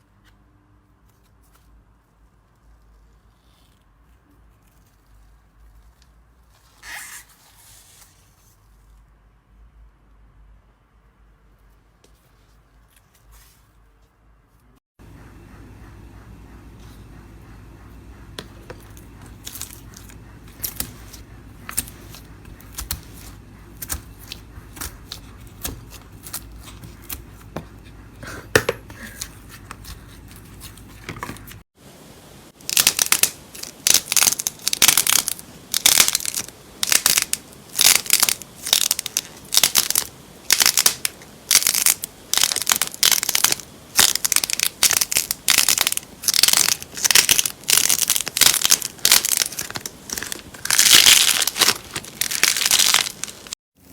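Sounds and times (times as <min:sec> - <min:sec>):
low hum: 0:15.0 - 0:26.2
slime crackling crunches: 0:19.2 - 0:27.2, 0:32.6 - 0:53.9.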